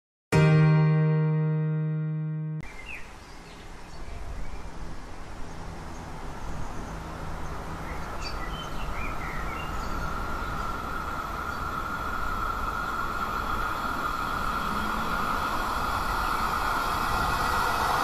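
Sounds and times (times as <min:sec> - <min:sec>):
high whine: 0:00.3 - 0:02.6
electric train rumbling: 0:09.3 - 0:18.0.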